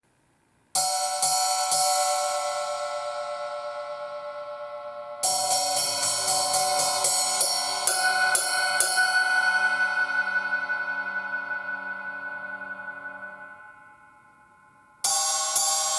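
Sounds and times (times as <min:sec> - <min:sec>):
quick cymbal strikes: 0:00.8 - 0:10.9
cymbals ringing: 0:00.8 - 0:15.9.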